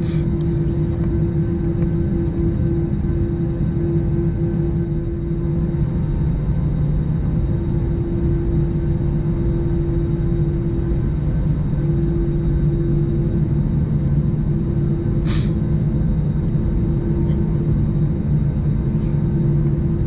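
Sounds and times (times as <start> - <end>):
airliner rumble: 0.0 - 20.0
mid-pitched hum: 0.0 - 20.0.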